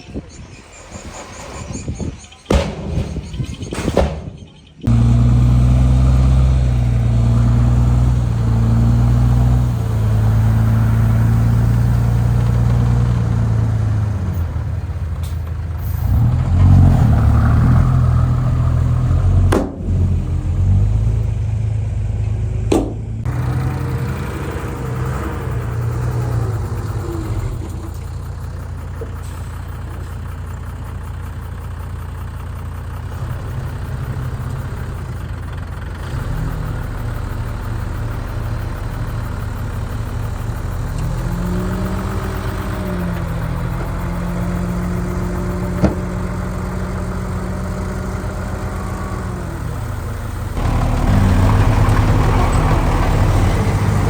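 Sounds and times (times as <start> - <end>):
heavy diesel engine working: 0.0 - 54.0
sharp metal knocks: 22.7 - 23.1.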